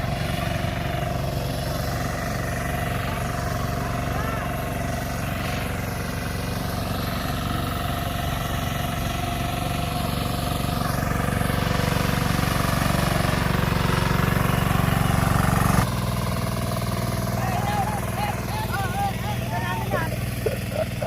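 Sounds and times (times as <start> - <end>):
tractor engine chugging: 0.0 - 21.0.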